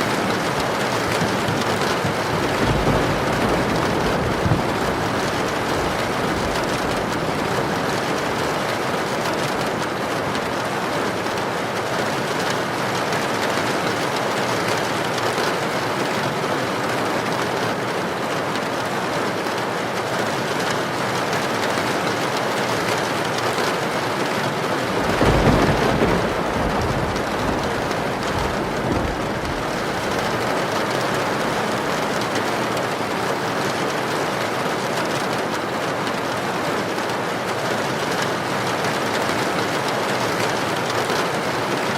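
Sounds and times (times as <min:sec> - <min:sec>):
heavy rain hissing: 0:00.0 - 0:10.3, 0:24.6 - 0:33.4.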